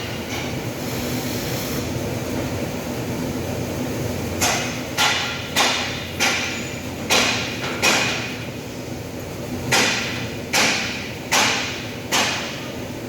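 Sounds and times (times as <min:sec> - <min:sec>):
workshop background noise: 0:00.0 - 0:13.0
hammer striking metal: 0:04.4 - 0:08.3, 0:09.7 - 0:12.6.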